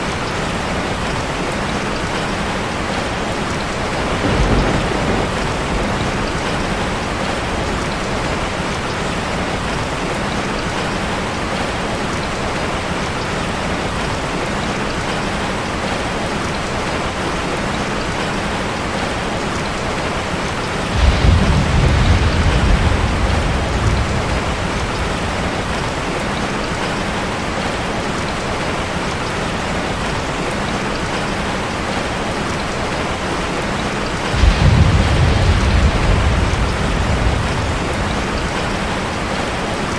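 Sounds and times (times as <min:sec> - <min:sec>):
heavy rain on a metal roof: 0:00.0 - 0:39.9
low rumble of thunder: 0:02.8 - 0:09.8, 0:20.5 - 0:27.0, 0:34.2 - 0:39.9.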